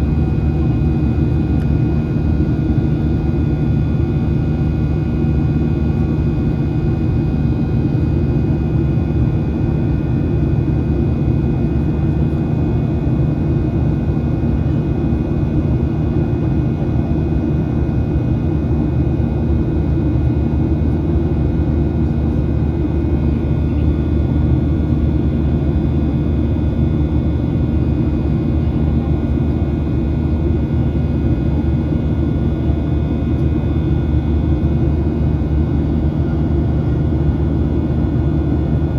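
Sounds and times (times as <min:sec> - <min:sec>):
airplane cabin engine drone: 0:00.0 - 0:38.9.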